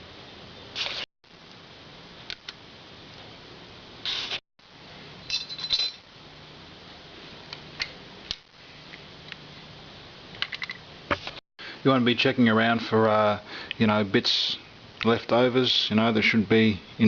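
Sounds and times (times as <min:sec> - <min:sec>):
metal valve parts clinking: 0:05.3 - 0:06.0.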